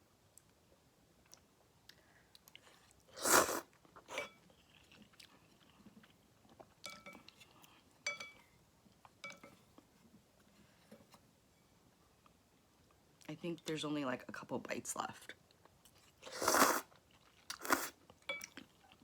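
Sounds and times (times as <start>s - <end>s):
chewing: 1.2s - 7.9s, 15.6s - 19.0s
slurping noodles: 3.1s - 3.7s, 16.2s - 16.9s, 17.5s - 18.0s
utensil clinking against bowl: 6.8s - 7.3s.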